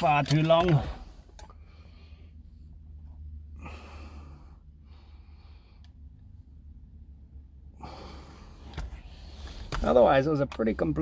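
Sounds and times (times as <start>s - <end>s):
soft breathing: 1.2s - 6.6s, 7.7s - 9.8s.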